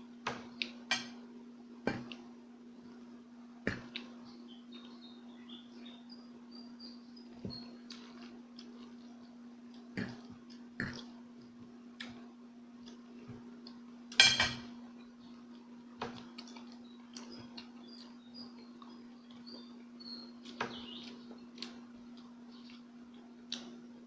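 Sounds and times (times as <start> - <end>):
steady low hum: 0.0 - 24.0
chewing: 7.8 - 13.9, 15.0 - 23.8.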